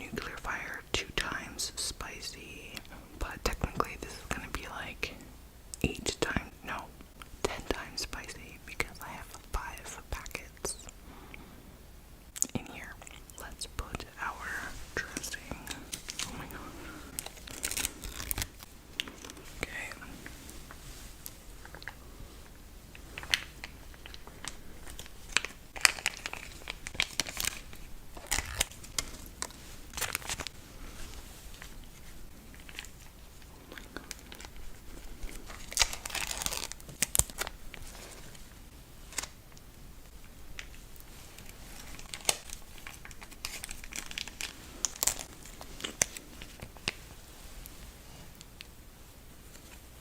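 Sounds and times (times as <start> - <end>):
plastic packaging crinkling and tearing: 15.0 - 20.0, 23.1 - 38.4, 39.0 - 39.4, 40.5 - 47.0.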